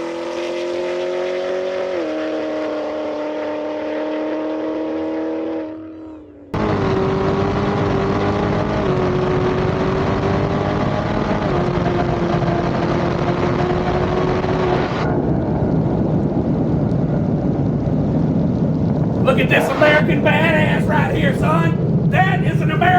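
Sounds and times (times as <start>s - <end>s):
drag car engine revving: 6.6s - 15.1s.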